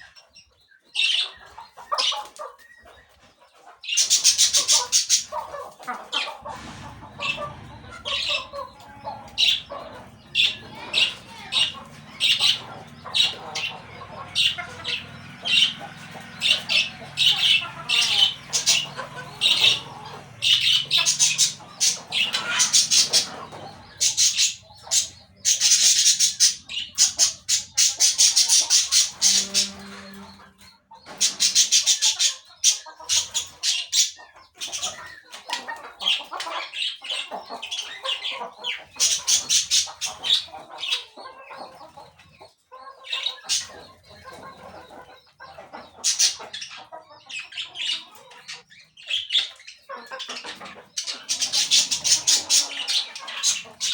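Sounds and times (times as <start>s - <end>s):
parakeets squawking and chattering: 0.0s - 3.1s, 3.7s - 53.9s.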